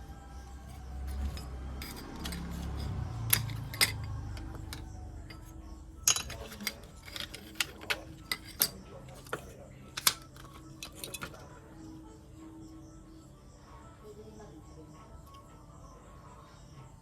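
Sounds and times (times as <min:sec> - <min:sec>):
clicks of small hard objects: 0:01.0 - 0:05.5, 0:06.1 - 0:11.4.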